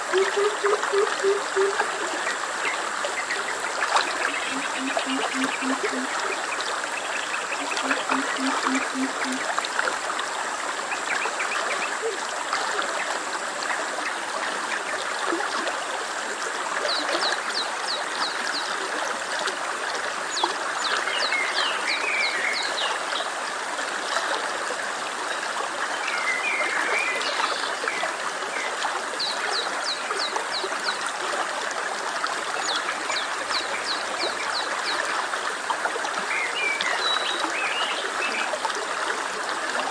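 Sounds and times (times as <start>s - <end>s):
stream water trickling: 0.0s - 39.9s
bird trilling: 4.2s - 6.1s, 7.6s - 9.4s.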